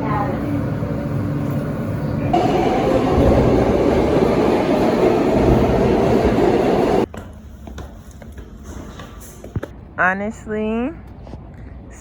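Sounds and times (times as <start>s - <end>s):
train rumbling: 0.0s - 7.1s.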